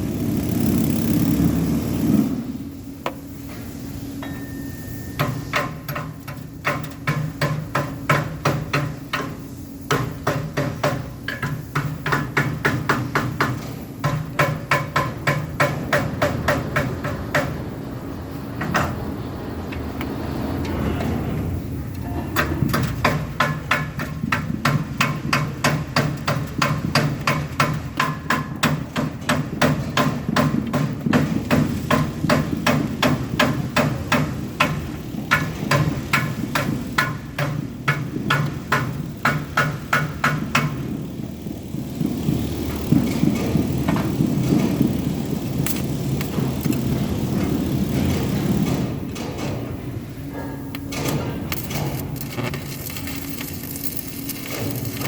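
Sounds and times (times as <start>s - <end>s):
machine humming: 0.0s - 55.0s
hammer blows: 3.0s - 19.1s
scattered knocks: 5.2s - 17.6s, 18.6s - 19.1s, 22.0s - 41.0s.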